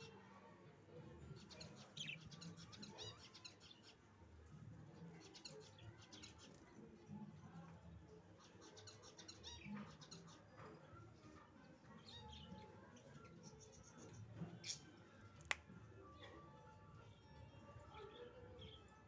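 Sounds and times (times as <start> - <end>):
budgerigars chirping and twittering: 1.4 - 4.0.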